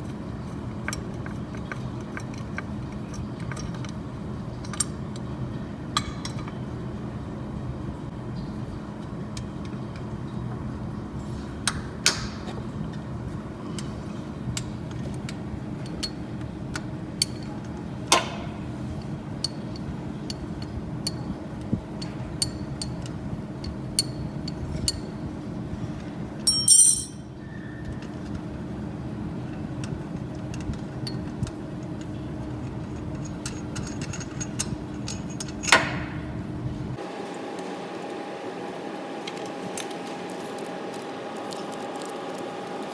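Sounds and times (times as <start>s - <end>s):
hand tools clinking on metal: 26.5s - 27.2s.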